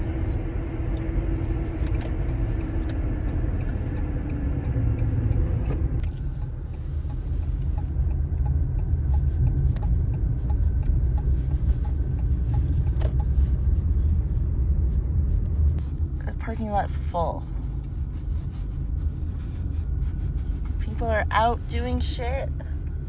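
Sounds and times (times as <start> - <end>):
car road and engine rumble: 0.0 - 23.0
faint regular tick: 0.9 - 14.0.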